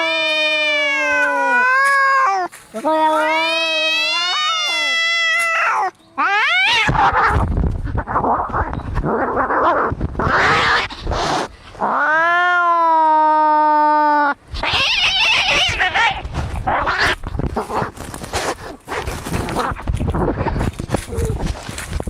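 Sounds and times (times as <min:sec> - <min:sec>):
cat yowling: 0:00.0 - 0:07.4, 0:09.1 - 0:11.0, 0:11.8 - 0:17.2
cats spitting and screeching: 0:00.0 - 0:21.7.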